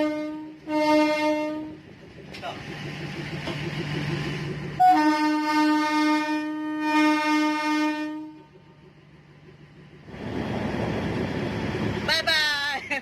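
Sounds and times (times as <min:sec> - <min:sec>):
horn blast: 0:00.0 - 0:01.8, 0:04.8 - 0:08.5
low engine rumble: 0:00.0 - 0:13.0.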